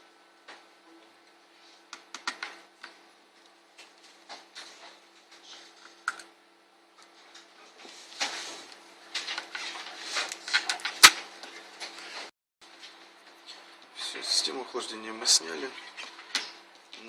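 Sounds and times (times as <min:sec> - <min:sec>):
scraping and rustling of laptop parts: 0:07.0 - 0:13.7.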